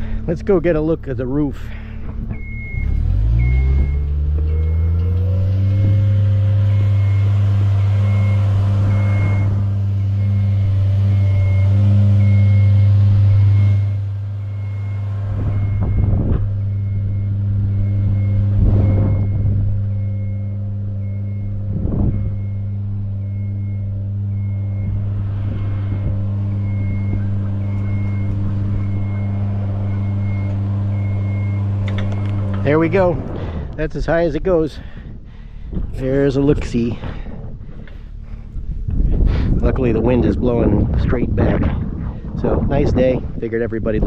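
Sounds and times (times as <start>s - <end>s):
lift engine revving: 0.0s - 43.4s
motion alarm beeping: 2.3s - 33.2s.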